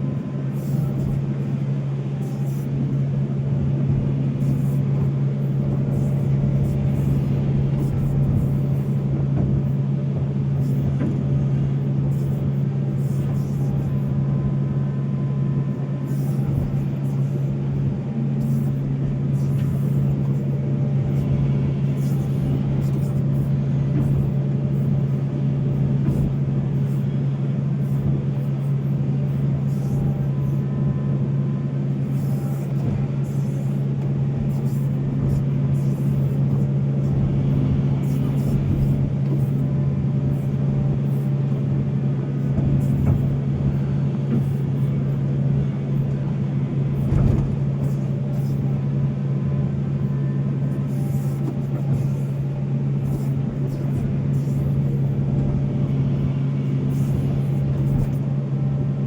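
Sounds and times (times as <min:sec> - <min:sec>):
excavator diesel engine droning: 0:00.0 - 0:59.0.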